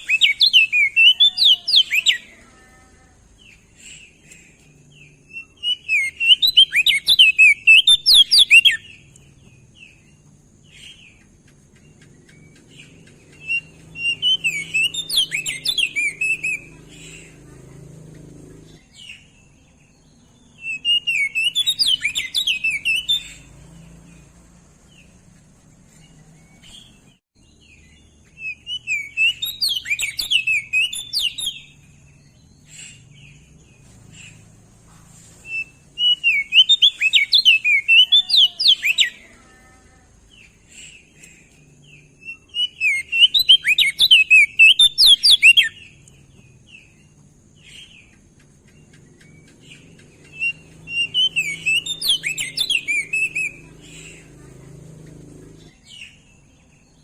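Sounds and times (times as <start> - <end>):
bird call notes: 0.0 - 2.6, 3.2 - 19.4, 20.5 - 24.3, 28.2 - 34.5, 35.4 - 39.4, 40.3 - 56.3
bird warbling song: 0.0 - 57.0.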